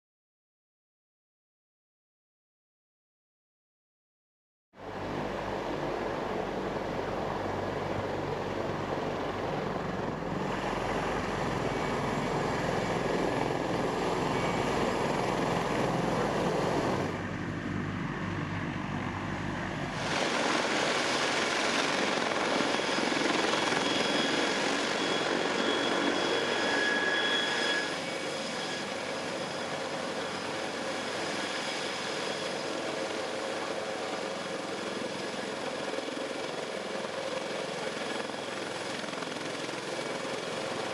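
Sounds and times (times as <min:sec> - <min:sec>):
helicopter rotor and engine noise: 0:04.8 - 0:40.9
high turbine whine: 0:04.8 - 0:40.9.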